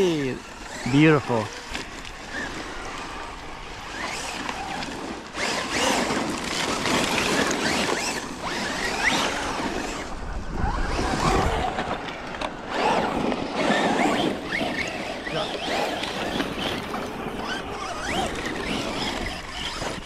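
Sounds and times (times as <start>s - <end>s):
electric motor whining: 0.0s - 20.0s
tyres on dirt and gravel: 0.0s - 20.0s.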